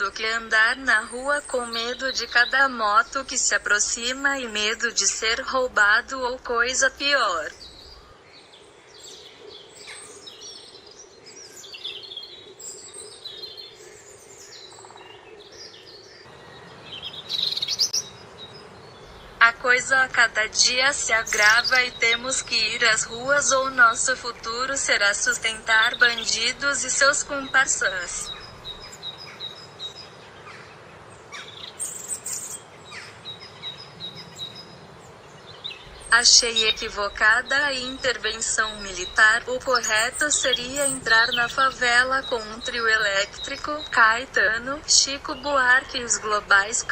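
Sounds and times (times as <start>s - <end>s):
birds chirping and trilling: 0.0s - 46.9s
faint steady hum: 0.0s - 46.9s
insects: 7.5s - 19.4s.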